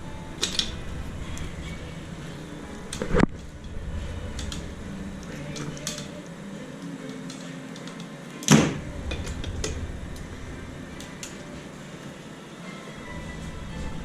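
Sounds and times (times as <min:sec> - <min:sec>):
loud bang: 0:08.5 - 0:11.8.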